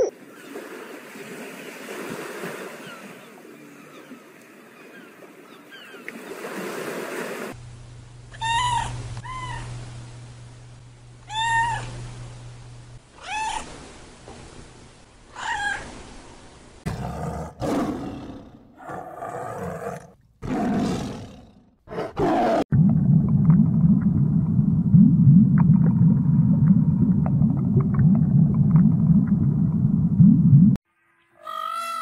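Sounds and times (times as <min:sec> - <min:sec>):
cat meowing: 0:11.3 - 0:11.9
tiger roaring: 0:16.9 - 0:22.7.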